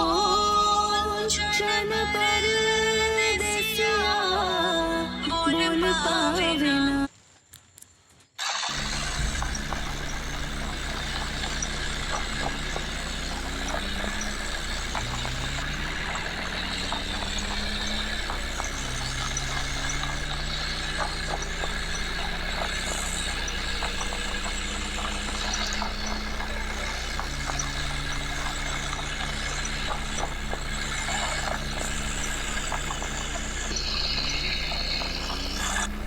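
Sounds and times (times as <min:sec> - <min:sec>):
tractor engine revving: 0:08.5 - 0:36.0.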